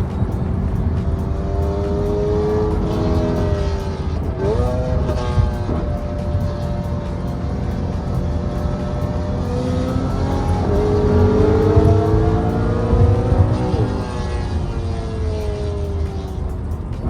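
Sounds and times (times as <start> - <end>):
car exhaust accelerating: 0.0 - 17.0.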